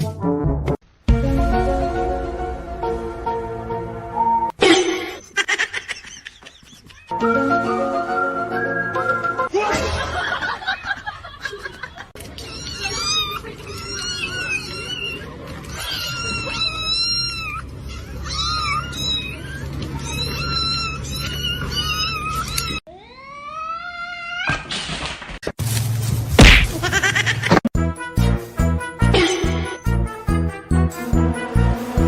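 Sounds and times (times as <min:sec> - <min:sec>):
cat meowing: 0:12.4 - 0:24.6.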